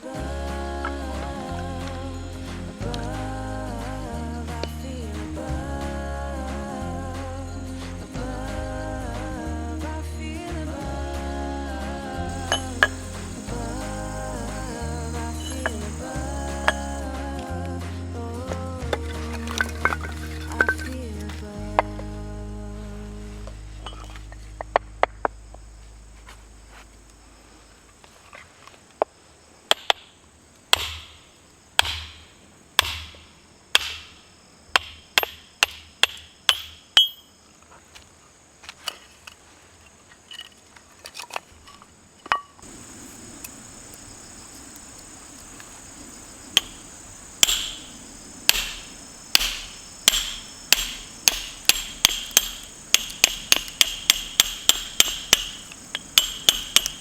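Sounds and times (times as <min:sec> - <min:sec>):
hammer blows on metal: 0:11.8 - 0:21.0, 0:46.6 - 0:57.0.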